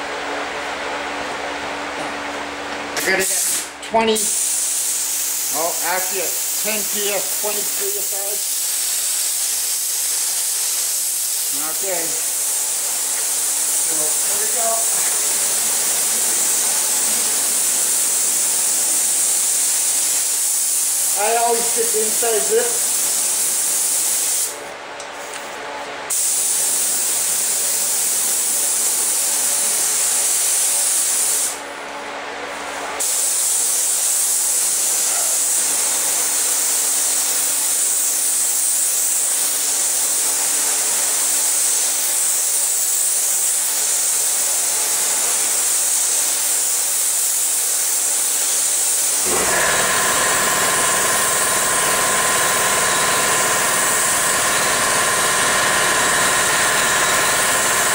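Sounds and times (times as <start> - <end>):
spray gun hissing: 3.0 - 24.5, 26.1 - 31.6, 33.0 - 57.9
motor running: 49.2 - 57.9.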